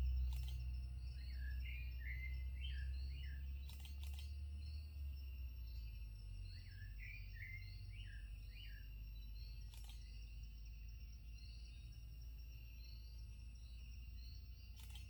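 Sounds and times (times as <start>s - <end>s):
single click: 9.7s - 10.1s.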